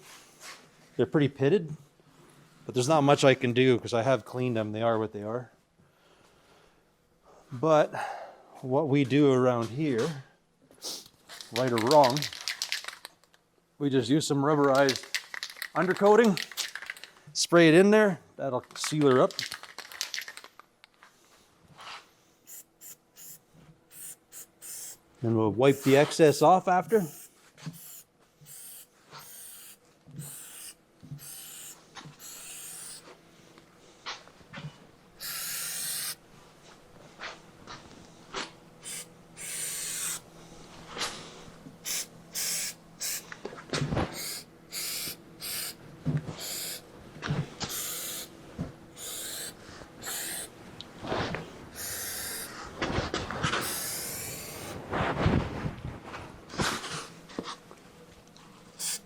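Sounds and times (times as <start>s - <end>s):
handling knocks and clicks: 11.3s - 13.4s, 14.6s - 17.2s, 18.6s - 21.0s
aerosol spray hissing bursts: 22.5s - 25.0s, 25.7s - 33.0s, 35.2s - 36.2s, 38.8s - 40.2s, 41.8s - 43.2s, 44.1s - 45.8s, 46.4s - 46.8s, 47.7s - 48.3s, 49.0s - 50.5s, 51.7s - 52.6s, 53.6s - 54.8s, 58.8s - 59.0s.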